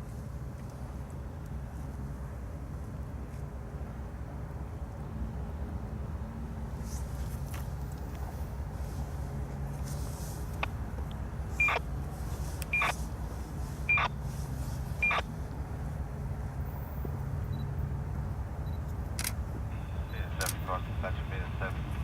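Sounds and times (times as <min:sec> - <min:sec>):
steady low rumble: 0:07.1 - 0:22.0
short high beeps: 0:11.6 - 0:11.8, 0:12.7 - 0:12.9, 0:13.9 - 0:14.1, 0:15.0 - 0:15.2.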